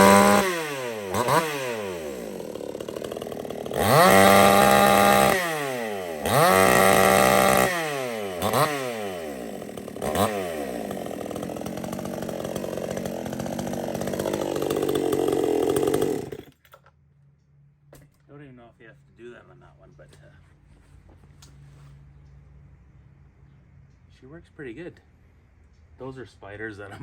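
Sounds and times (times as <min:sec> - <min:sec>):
chainsaw revving and idling: 0:00.0 - 0:16.6.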